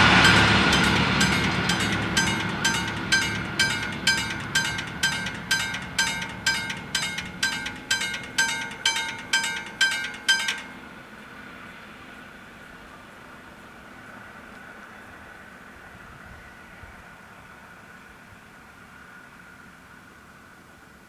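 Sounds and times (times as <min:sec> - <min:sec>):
level crossing bells ringing: 0:00.0 - 0:10.9
diesel railcar rumble: 0:00.0 - 0:11.0.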